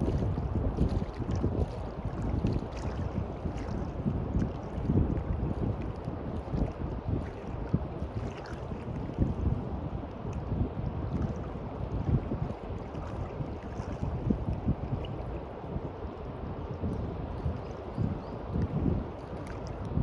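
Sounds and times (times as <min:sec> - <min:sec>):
small waves washing on beach: 0:00.0 - 0:20.0
wind buffeting microphone: 0:00.0 - 0:20.0.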